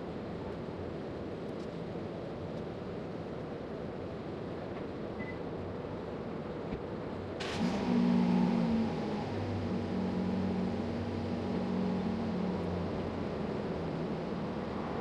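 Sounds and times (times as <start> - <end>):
low motor hum: 7.6 - 15.0
low background rumble: 8.4 - 15.0.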